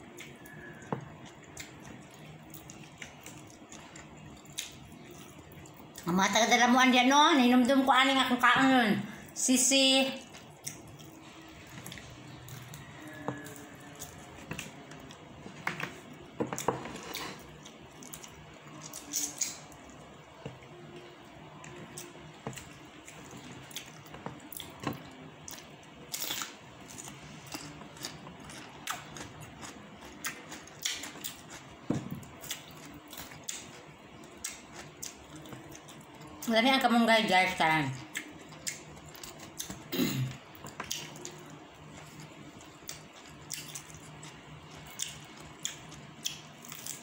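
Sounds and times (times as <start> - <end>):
wet chewing and lip smacks: 25.4 - 31.7, 38.1 - 39.8, 40.6 - 47.0.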